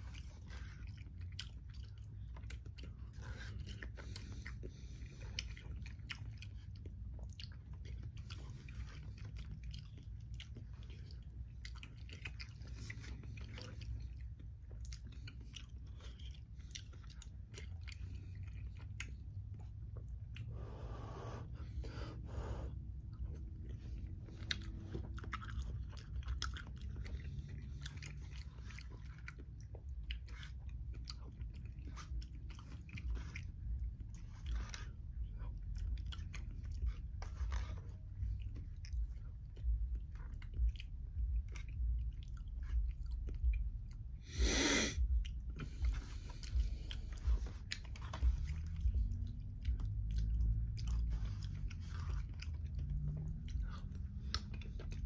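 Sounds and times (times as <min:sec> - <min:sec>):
wet chewing sounds: 0:00.0 - 0:55.0.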